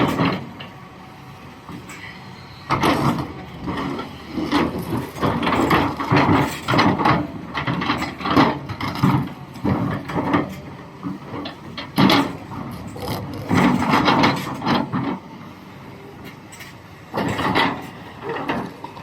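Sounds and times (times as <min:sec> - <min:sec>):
excavator bucket scraping rock: 0:11.8 - 0:15.2.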